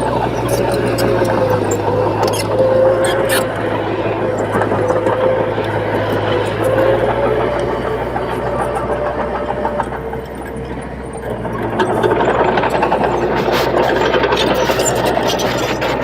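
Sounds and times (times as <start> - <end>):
bulldozer diesel engine: 0.0 - 16.0
rattling clatter: 0.0 - 16.0.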